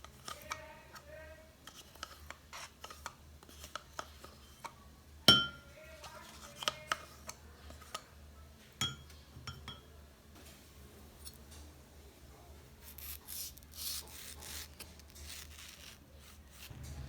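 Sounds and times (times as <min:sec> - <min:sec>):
glassware clinking: 0:05.3 - 0:05.7, 0:08.8 - 0:09.9.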